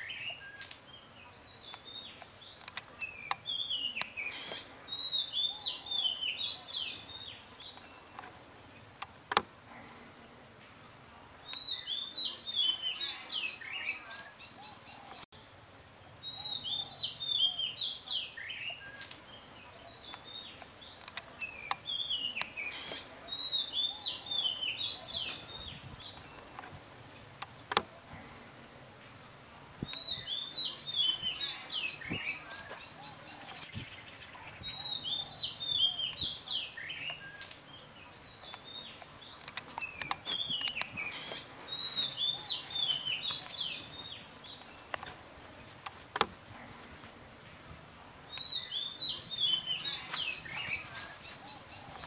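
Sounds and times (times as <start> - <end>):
songbird chirping: 0.0 - 52.0
sharp clicks: 27.4 - 27.9.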